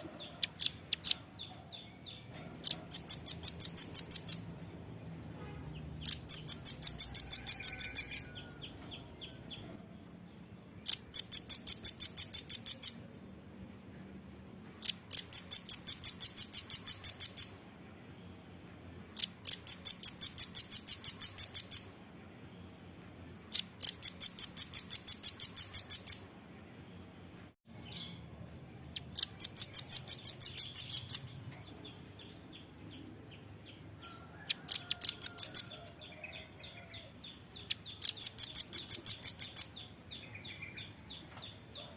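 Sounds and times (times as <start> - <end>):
nuthatch sharp chit calls: 2.6 - 4.4, 6.0 - 8.4, 10.9 - 13.0, 19.2 - 21.9, 23.5 - 26.2, 29.0 - 31.3, 34.6 - 35.8, 38.0 - 39.8.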